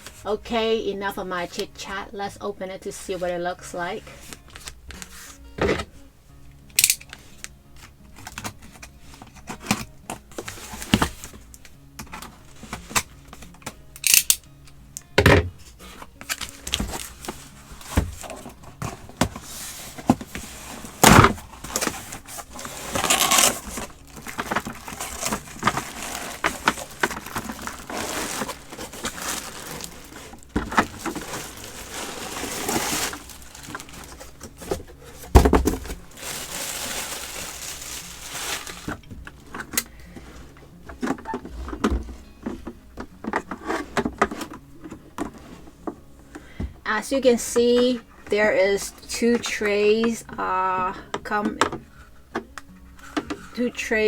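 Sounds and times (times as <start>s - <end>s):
packaging rustling and crinkling: 4.0s - 5.9s, 6.7s - 14.4s, 15.4s - 46.0s
plastic parts clicking and knocking: 6.7s - 7.2s, 8.2s - 14.4s.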